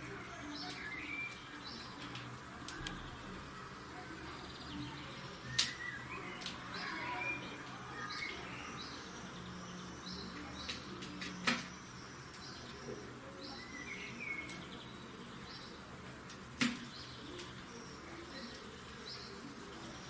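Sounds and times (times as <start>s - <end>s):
sharp clicks: 1.8s - 3.0s.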